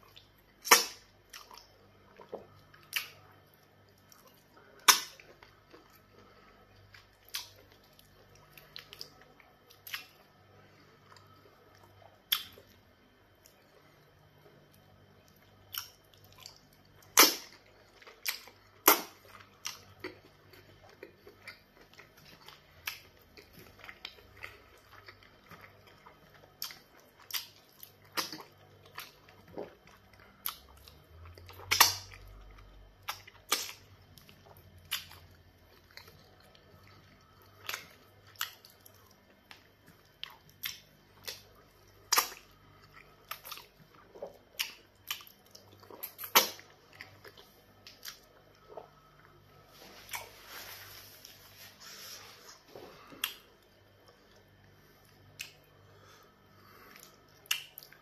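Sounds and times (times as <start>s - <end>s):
wet mouth clicks and smacks: 57.0s - 58.0s.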